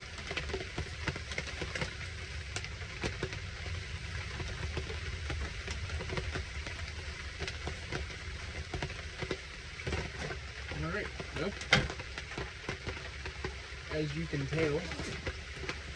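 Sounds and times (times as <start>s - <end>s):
heavy rain pouring: 0.0s - 15.9s
low steady rumble: 0.0s - 15.9s
raindrops ticking close by: 0.0s - 15.9s.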